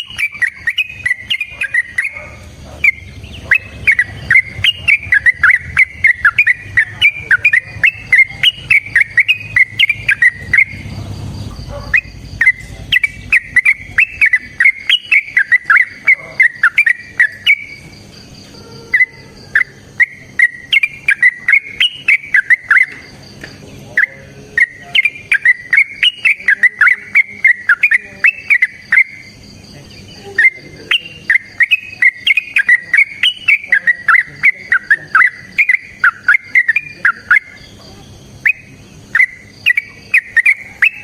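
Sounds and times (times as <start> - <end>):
bulbul chattering song: 0.0 - 41.0.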